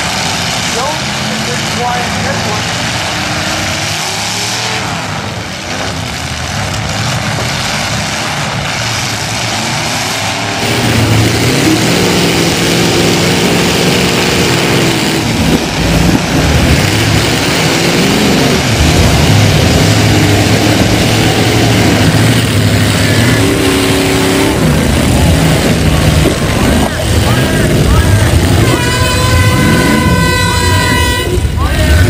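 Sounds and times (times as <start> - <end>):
car engines running and revving: 0.0 - 32.0.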